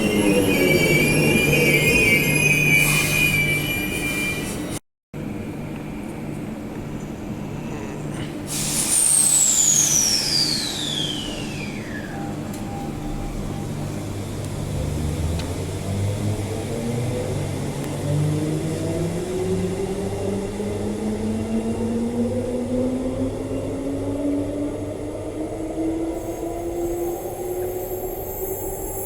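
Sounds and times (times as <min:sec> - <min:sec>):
train pulling away: 0:00.0 - 0:04.8, 0:08.5 - 0:29.0
train motor whine falling: 0:08.7 - 0:12.3.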